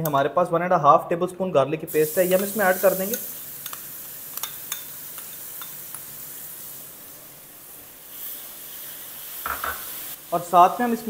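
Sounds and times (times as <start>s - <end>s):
garlic sizzling in hot ghee: 1.9s - 11.0s
spoon clicking against pot: 4.4s - 5.8s.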